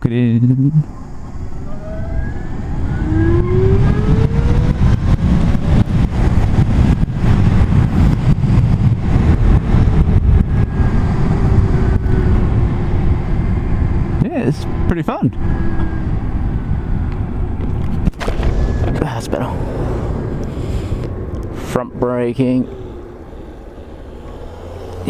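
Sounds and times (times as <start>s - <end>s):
wind and road noise: 0.0s - 25.0s
electric motorcycle motor whine: 1.3s - 5.1s.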